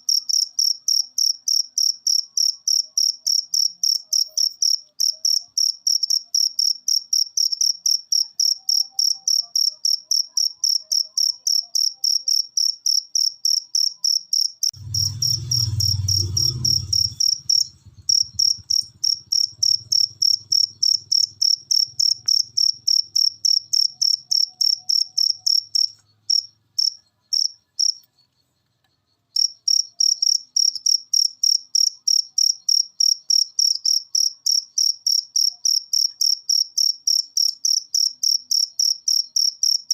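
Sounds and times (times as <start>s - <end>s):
cricket chirping: 0.0s - 39.9s
low rumble: 14.8s - 21.4s.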